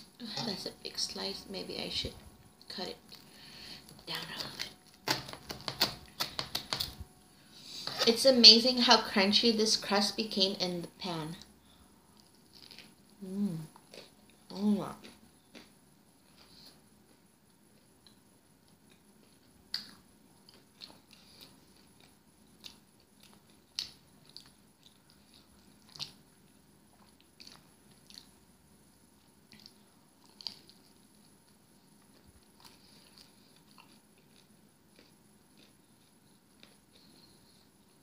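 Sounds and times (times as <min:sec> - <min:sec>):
crunchy chewing: 0:12.1 - 0:28.4, 0:29.2 - 0:38.0.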